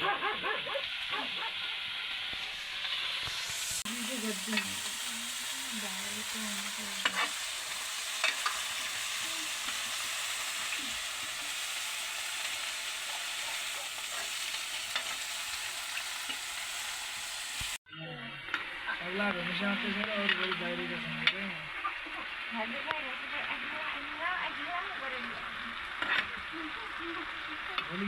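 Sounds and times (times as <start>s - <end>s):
food sizzling in a pan: 0.0s - 17.8s, 18.4s - 28.0s
utensil clicking against pan: 6.6s - 7.4s, 8.1s - 9.9s.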